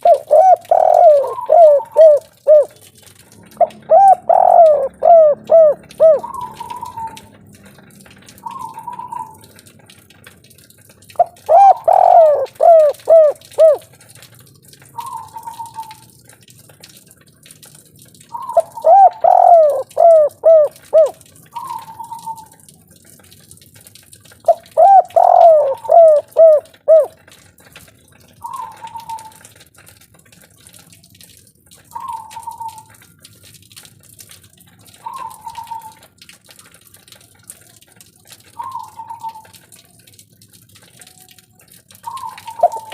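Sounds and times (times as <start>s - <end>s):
dove cooing: 0.0s - 2.8s, 3.5s - 7.4s, 8.4s - 9.5s, 11.2s - 13.9s, 18.3s - 22.6s, 24.5s - 27.2s, 28.4s - 29.5s, 35.0s - 36.0s, 38.5s - 39.6s, 42.0s - 42.9s.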